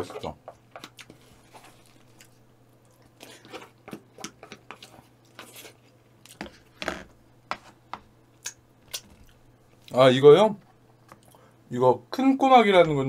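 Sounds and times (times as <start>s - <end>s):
close chewing of food: 0.5s - 6.7s.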